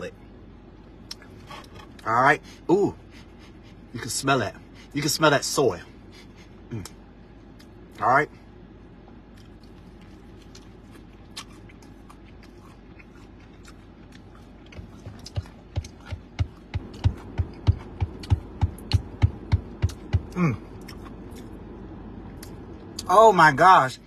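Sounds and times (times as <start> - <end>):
chewing crispy chicken: 9.3 - 19.0, 19.9 - 21.6
person humming mmm: 20.2 - 20.8.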